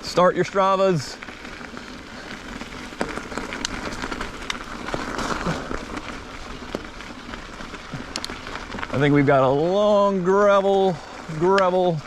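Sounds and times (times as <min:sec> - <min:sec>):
bike tyres crunching on gravel: 0:00.0 - 0:12.0
stones ticking: 0:00.9 - 0:09.2.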